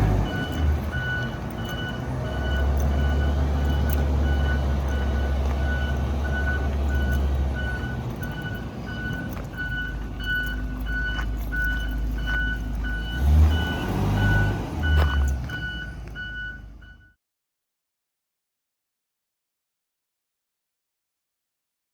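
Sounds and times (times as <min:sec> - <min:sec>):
bus engine rumble: 0:00.0 - 0:17.1
backup alarm beeping: 0:00.0 - 0:17.2.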